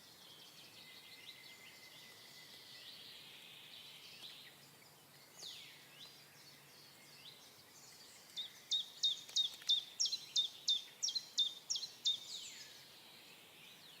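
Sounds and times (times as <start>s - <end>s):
nuthatch whistled song: 8.3s - 12.8s.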